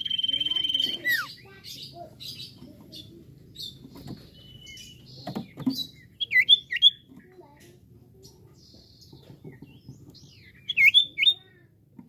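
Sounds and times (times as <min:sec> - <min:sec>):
bird singing whistles and chirps: 0:00.0 - 0:01.4, 0:04.1 - 0:05.2, 0:05.8 - 0:07.0, 0:10.3 - 0:11.4.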